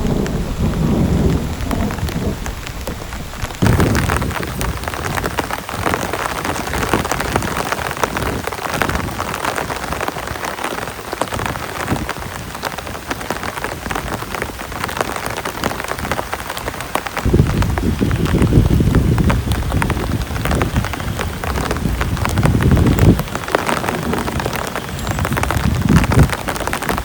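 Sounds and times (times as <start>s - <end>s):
low rumble: 0.0s - 4.4s
heavy rain falling: 0.0s - 27.0s.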